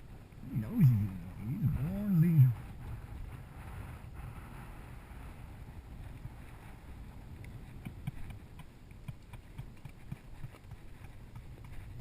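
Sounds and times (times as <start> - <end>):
wind rumble on microphone: 0.0 - 12.0
horse hooves clopping on rocks: 7.3 - 12.0.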